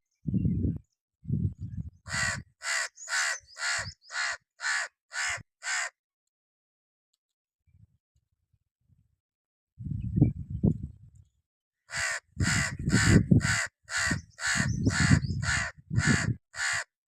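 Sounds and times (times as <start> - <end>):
crow cawing: 2.1 - 6.0, 11.9 - 16.9.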